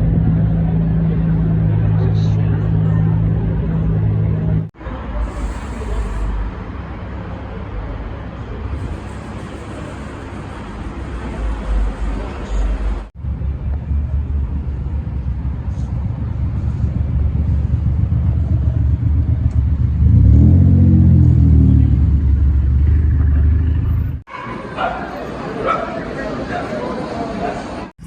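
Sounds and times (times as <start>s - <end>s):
car engine idling and revving: 0.0s - 4.8s, 10.3s - 24.3s.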